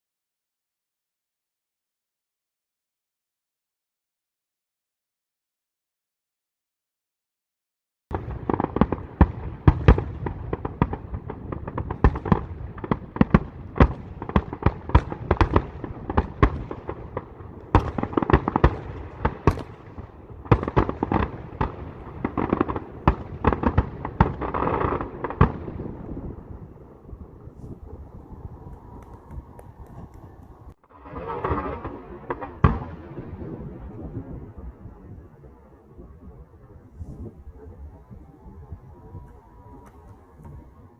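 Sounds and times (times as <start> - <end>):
fireworks rumbling: 8.1 - 40.9.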